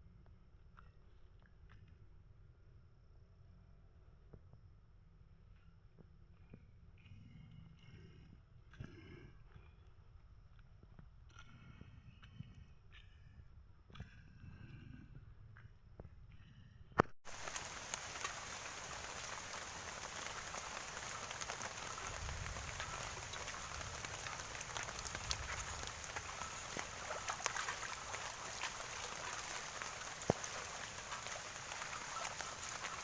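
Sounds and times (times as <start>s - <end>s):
heavy rain falling: 17.2s - 33.0s.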